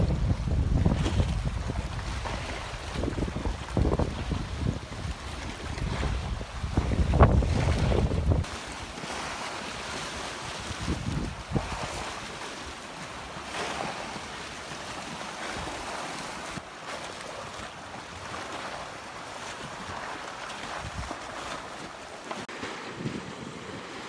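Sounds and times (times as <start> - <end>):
strong gusting wind: 0.0 - 8.5, 10.6 - 12.0
wind buffeting microphone: 0.0 - 8.9, 10.2 - 12.5, 20.7 - 21.5
lake waves breaking: 0.0 - 24.0.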